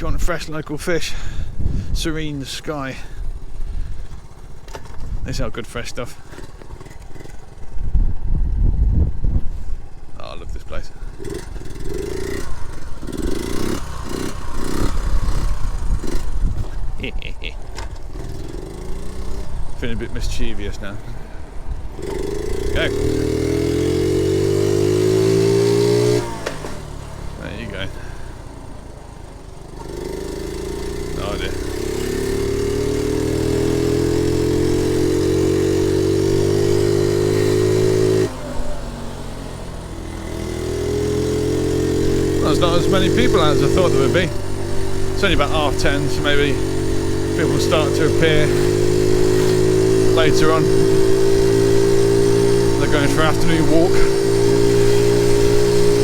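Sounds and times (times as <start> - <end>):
small motorcycle engine revving: 0.0 - 56.0
wind rumble on microphone: 1.2 - 2.1, 7.5 - 11.7, 14.7 - 17.5.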